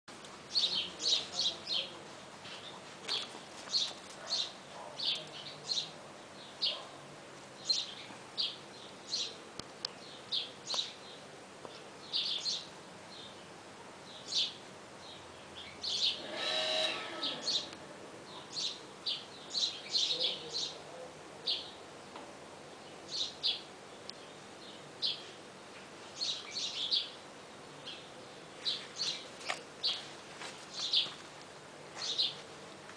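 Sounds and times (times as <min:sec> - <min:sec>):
small birds chirping: 0:00.5 - 0:31.3, 0:31.9 - 0:32.5
loud bird call: 0:15.9 - 0:17.8.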